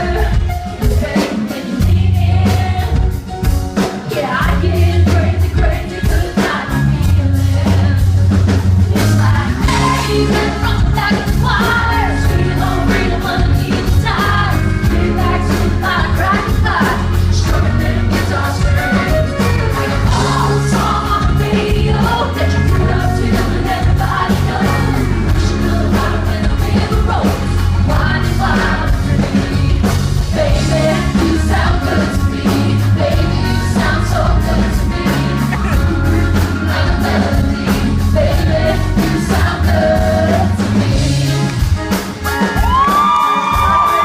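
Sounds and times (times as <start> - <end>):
live pop band playing: 0.0 - 44.0
woman singing: 4.1 - 41.0.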